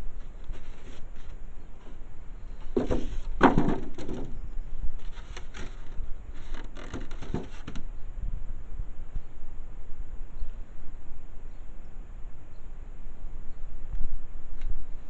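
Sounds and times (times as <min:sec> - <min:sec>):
packaging rustling and scraping: 0:00.2 - 0:02.0, 0:02.6 - 0:04.3, 0:05.0 - 0:07.8.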